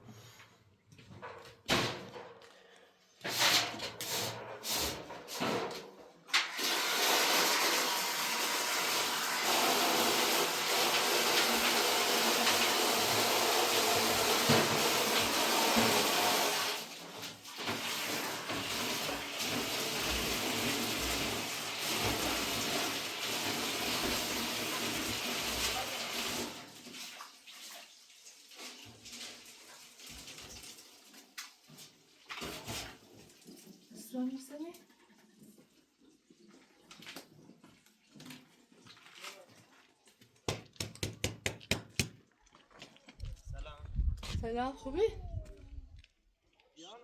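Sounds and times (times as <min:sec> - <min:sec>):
water running and splashing: 0:06.6 - 0:39.3.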